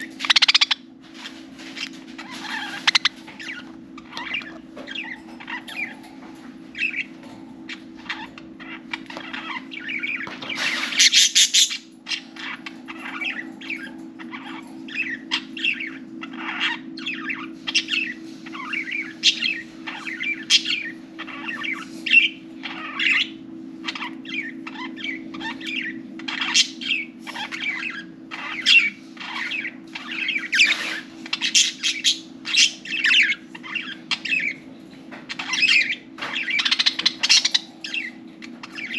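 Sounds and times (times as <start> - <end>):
budgerigars chirping: 0.0 - 38.9
steady low hum: 0.0 - 38.9.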